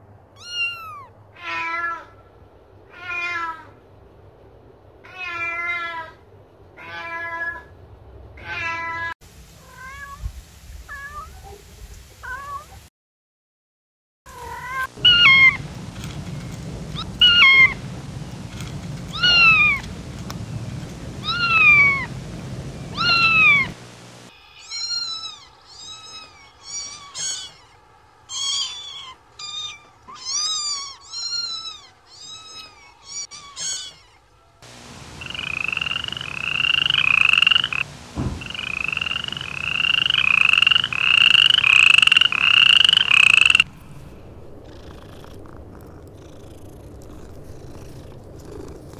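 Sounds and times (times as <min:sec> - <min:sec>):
kittens meowing: 0:00.4 - 0:02.1, 0:14.3 - 0:20.0, 0:21.2 - 0:22.2, 0:22.9 - 0:34.3.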